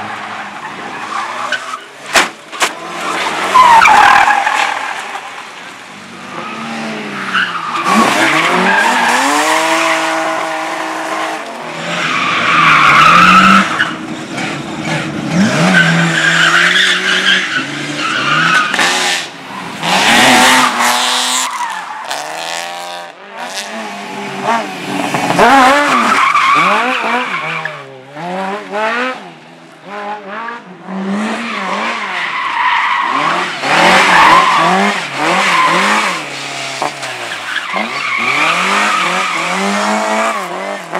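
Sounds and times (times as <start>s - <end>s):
car engine revving: 22.1s - 29.3s.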